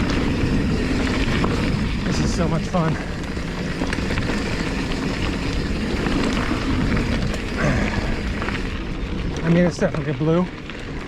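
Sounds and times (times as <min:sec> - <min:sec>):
bike rattling: 0:00.0 - 0:11.0
bike tyre roar on dirt: 0:00.0 - 0:11.0.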